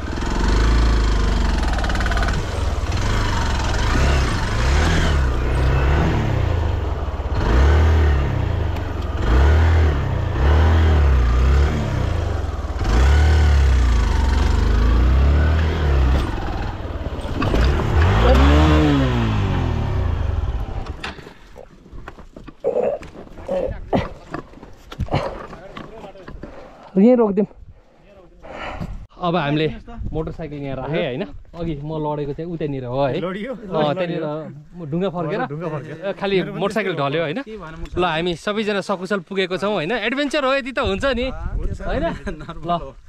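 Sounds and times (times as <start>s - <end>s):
motorcycle engine revving: 0.0s - 21.1s
motorcycle clattering over rocks: 16.0s - 18.8s, 20.7s - 26.5s.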